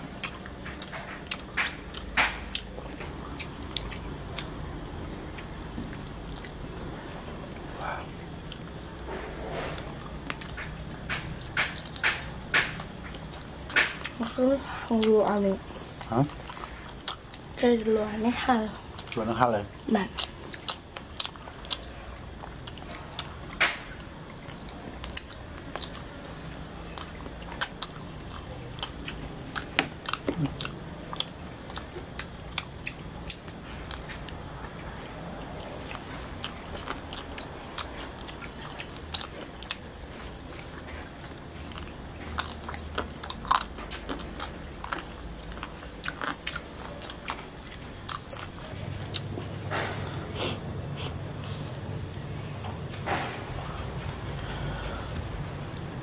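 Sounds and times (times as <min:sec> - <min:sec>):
chewing and biting chicken wings: 0:00.0 - 0:14.3, 0:18.8 - 0:56.0
wet mouth sounds: 0:24.5 - 0:34.5.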